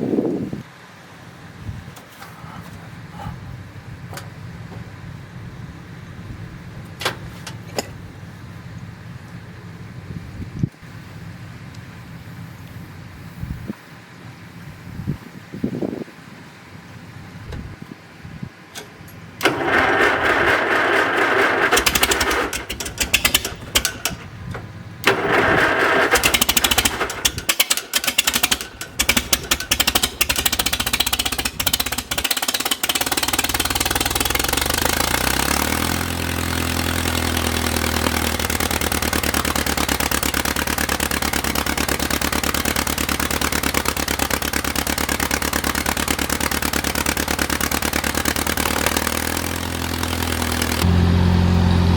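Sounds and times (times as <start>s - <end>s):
engine starting and idling: 18.8s - 51.9s.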